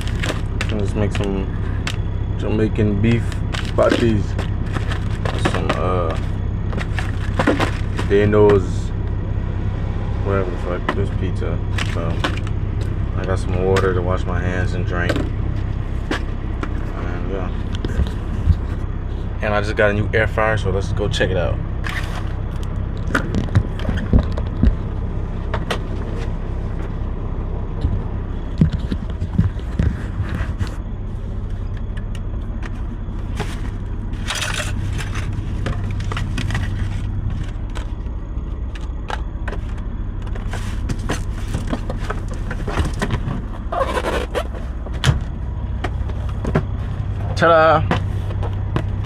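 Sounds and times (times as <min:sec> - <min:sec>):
cardboard scraping and rustling: 0:00.0 - 0:02.0, 0:03.0 - 0:08.6, 0:21.8 - 0:22.4, 0:28.6 - 0:30.8, 0:32.7 - 0:38.0, 0:39.5 - 0:45.3
low engine hum: 0:00.0 - 0:49.0.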